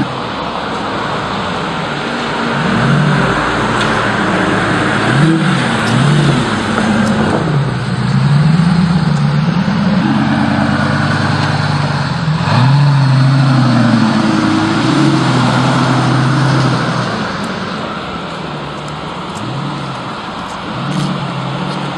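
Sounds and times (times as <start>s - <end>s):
car engine revving: 0.0s - 21.9s.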